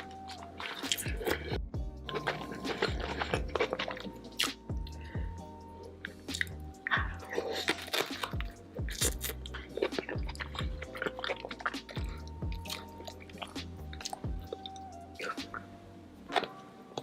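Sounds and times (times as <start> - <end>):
background music with bass: 0.0 - 17.0
loud chewing and crunching food: 0.0 - 17.0
kick drum: 1.1 - 2.1, 2.9 - 3.5, 8.4 - 9.3, 10.1 - 10.9, 11.9 - 12.7, 14.3 - 14.5.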